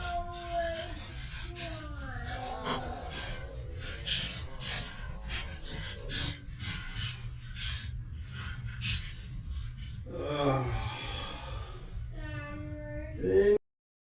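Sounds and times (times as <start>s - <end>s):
person's wordless voice: 0.0s - 6.7s.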